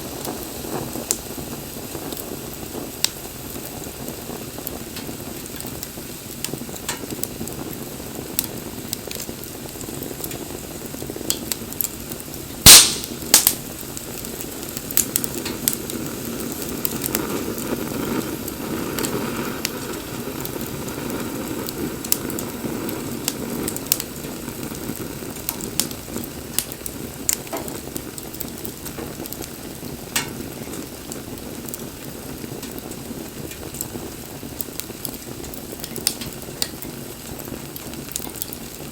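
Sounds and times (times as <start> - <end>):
bonfire flames rushing: 0.0 - 38.9
fire crackling and popping: 0.0 - 38.9.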